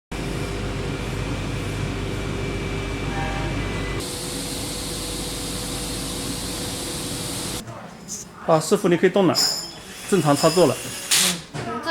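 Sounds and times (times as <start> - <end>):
machine hum: 0.1 - 7.6.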